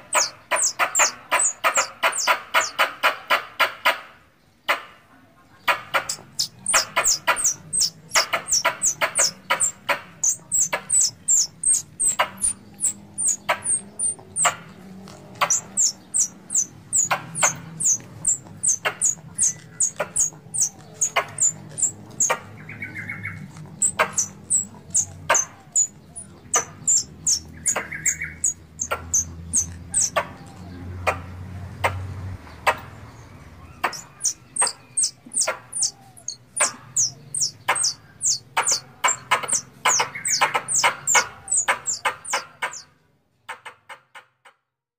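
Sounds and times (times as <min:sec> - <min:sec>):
squirrel calling high chips: 0:00.0 - 0:02.8, 0:06.0 - 0:14.6, 0:15.3 - 0:22.4, 0:23.4 - 0:30.2, 0:33.7 - 0:42.8.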